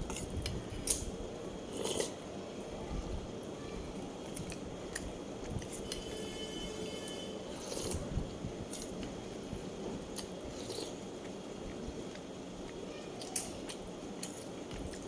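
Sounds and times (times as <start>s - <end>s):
person chewing food: 1.7s - 2.2s, 7.5s - 8.1s, 10.1s - 15.0s.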